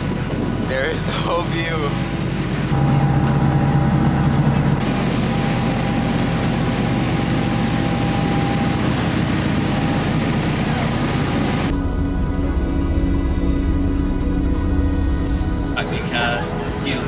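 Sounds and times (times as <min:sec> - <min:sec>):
wind and water rushing: 0:00.0 - 0:11.7
boat engine running: 0:00.0 - 0:17.0.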